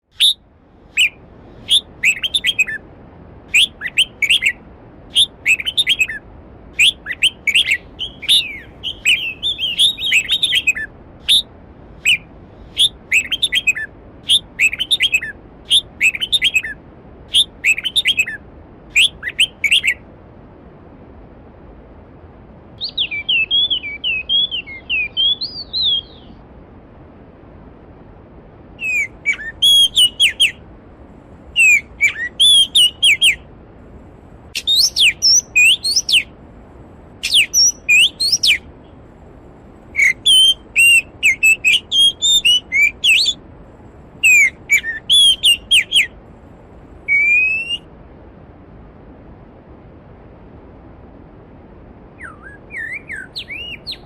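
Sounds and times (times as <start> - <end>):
songbird singing: 0.0 - 20.1, 22.8 - 26.5, 28.8 - 30.7, 31.5 - 36.4, 37.2 - 46.2, 46.9 - 47.9, 52.1 - 54.0.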